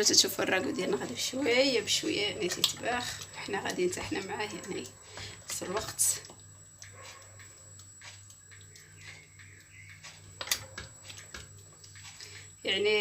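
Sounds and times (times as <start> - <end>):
sauce bubbles popping: 5.0 - 12.6.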